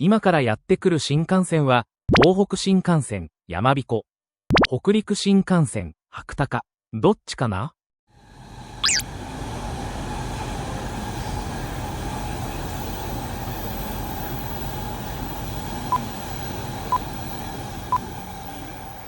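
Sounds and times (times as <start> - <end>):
train running noise: 8.2 - 19.0
short beeps: 8.8 - 9.0, 15.9 - 16.2, 16.9 - 17.2.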